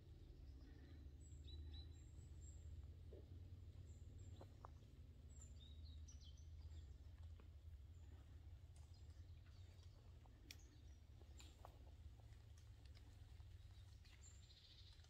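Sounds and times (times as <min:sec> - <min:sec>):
low steady rumble: 0:00.0 - 0:15.0
faint high bird chirps: 0:00.1 - 0:03.3.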